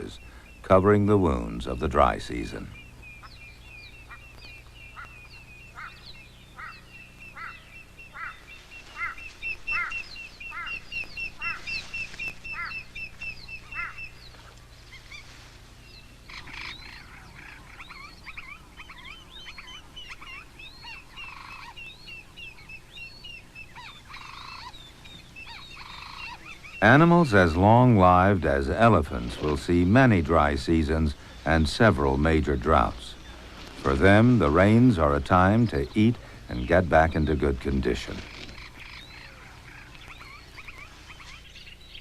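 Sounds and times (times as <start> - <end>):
bird call repeating: 0.0 - 14.3
high bird trill: 0.0 - 42.0.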